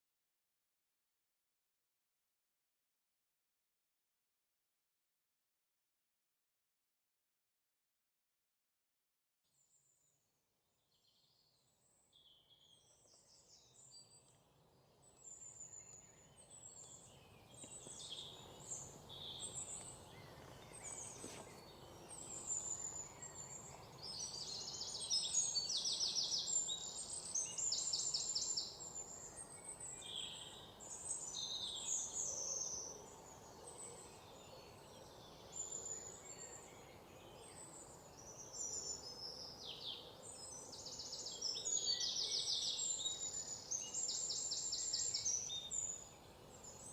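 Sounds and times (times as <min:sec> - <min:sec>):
faint steady background noise: 0:11.3 - 0:46.9
birds chirping and singing: 0:15.0 - 0:46.9.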